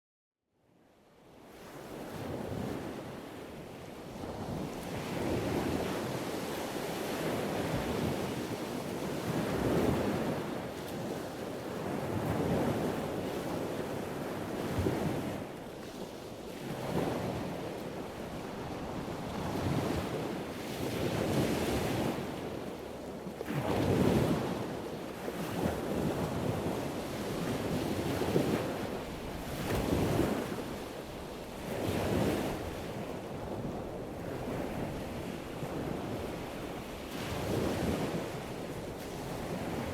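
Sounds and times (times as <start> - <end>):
wind noise on microphone: 1.5 - 39.9.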